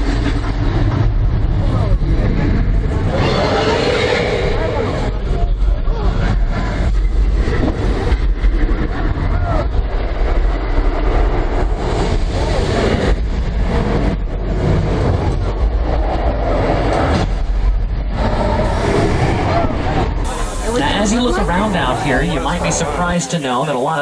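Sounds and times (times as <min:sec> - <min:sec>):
tram rumbling: 0:18.2 - 0:24.0.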